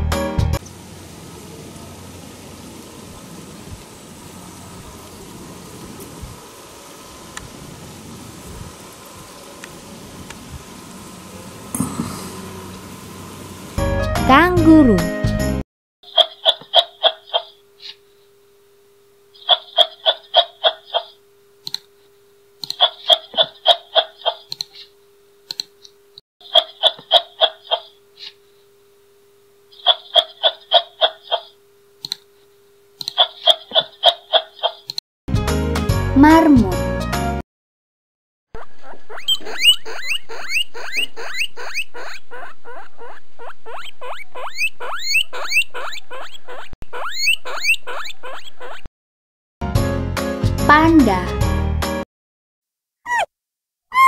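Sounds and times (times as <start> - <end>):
kangaroo clicking calls: 22.6 - 24.8, 33.0 - 35.0
rodent squeaking: 38.6 - 48.9, 53.1 - 53.3.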